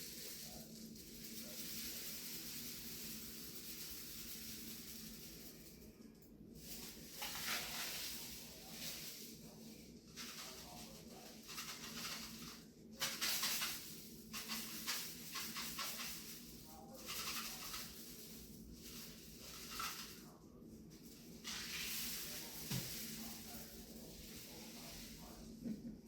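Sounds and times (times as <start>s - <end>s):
rain stick trickling: 10.2s - 20.2s.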